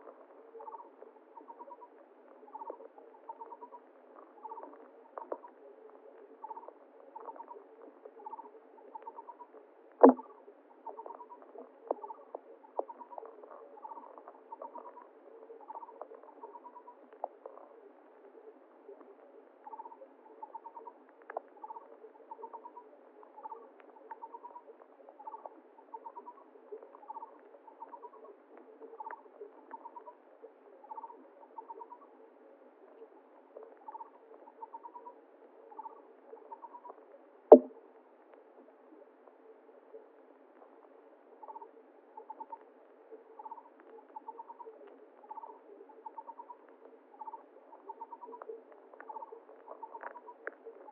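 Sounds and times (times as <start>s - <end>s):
faint flowing water: 0.0s - 50.9s
sharp knock: 37.5s - 37.7s.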